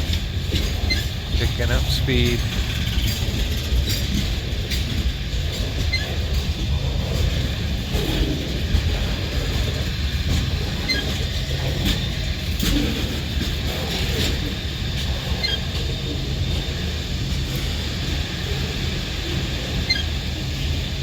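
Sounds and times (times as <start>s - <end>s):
train wheel clicks: 0.0s - 16.0s
freight train rumbling past: 0.0s - 21.0s.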